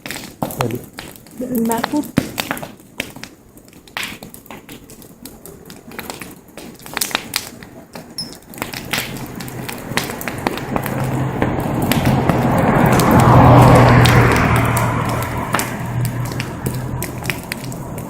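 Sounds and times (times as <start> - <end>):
wood fire crackling and popping: 0.0 - 18.0
rushing noise with low hum: 8.5 - 18.0.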